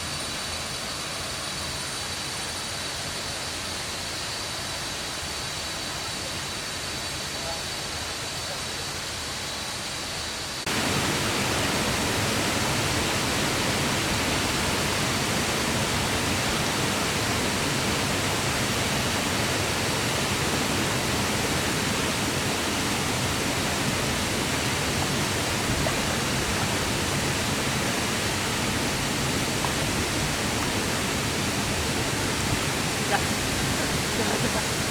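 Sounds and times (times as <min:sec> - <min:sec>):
soft water noise: 0:10.5 - 0:34.9
waterfall roaring: 0:10.6 - 0:34.9.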